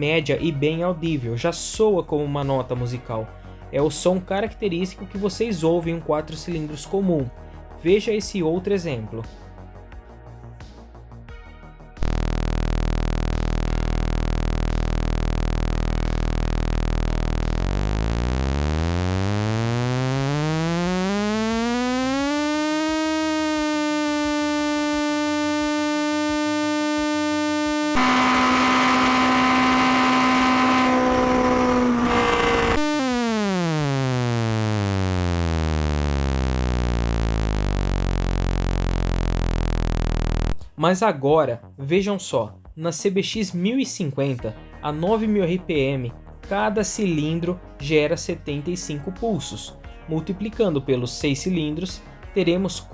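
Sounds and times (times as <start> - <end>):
simulated engine revving: 12.0 - 40.6.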